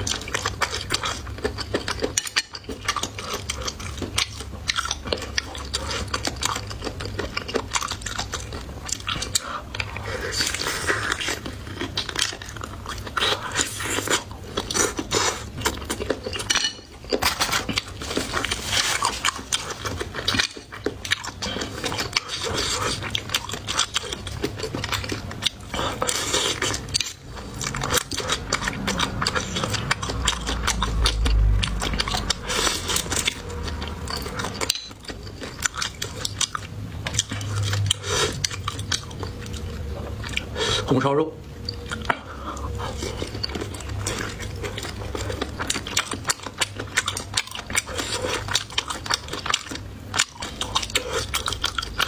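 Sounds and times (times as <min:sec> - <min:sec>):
person biting and chewing: 0:00.0 - 0:40.8, 0:41.6 - 0:52.0
cutlery clinking on dishes: 0:16.2 - 0:17.7.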